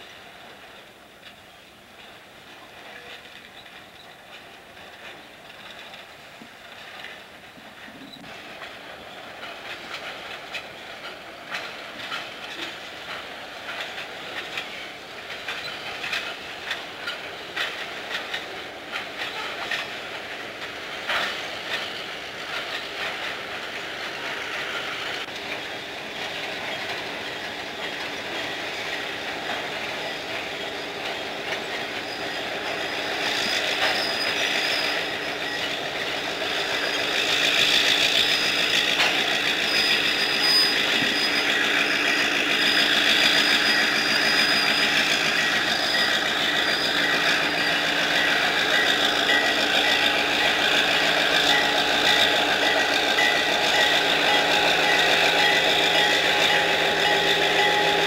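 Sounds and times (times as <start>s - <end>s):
wheel squeal: 31.4s - 35.8s, 36.4s - 58.0s.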